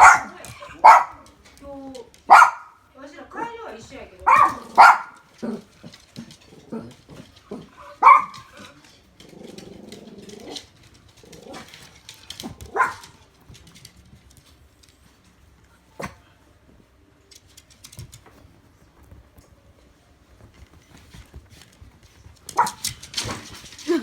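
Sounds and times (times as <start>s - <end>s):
dog barking: 0.0s - 1.2s, 2.3s - 2.8s, 4.2s - 5.2s, 8.0s - 8.5s, 12.7s - 13.1s, 22.5s - 22.8s.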